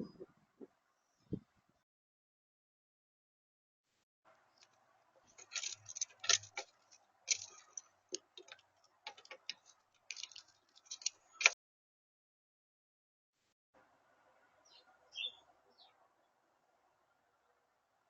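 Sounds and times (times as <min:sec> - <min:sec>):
faint steady hum: 0:13.8 - 0:18.0.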